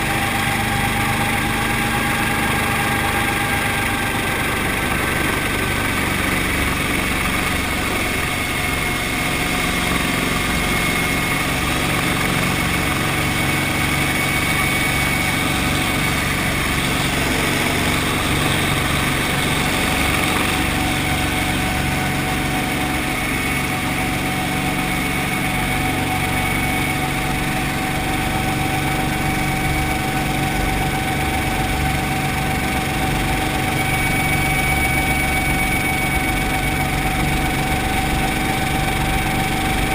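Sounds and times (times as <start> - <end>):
helicopter engine and rotor: 0.0 - 39.9
thin steady whine: 0.0 - 39.9.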